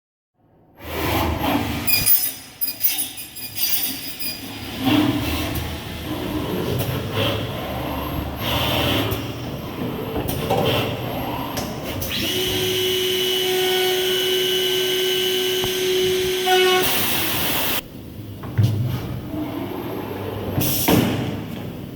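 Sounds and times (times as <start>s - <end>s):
mechanical clattering and knocking: 1.8s - 5.7s.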